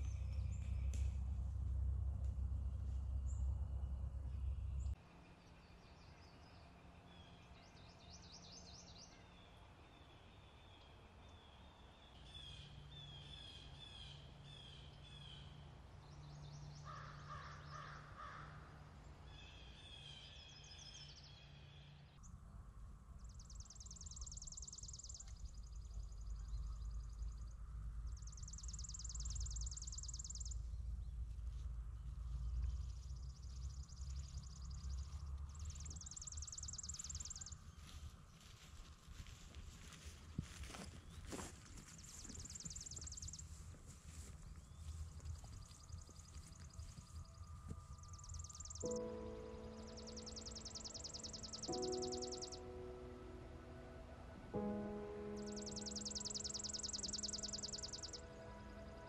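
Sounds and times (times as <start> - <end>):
low wind rumble: 0.0 - 59.0
birds trilling and chirping: 23.3 - 52.8, 55.4 - 59.0.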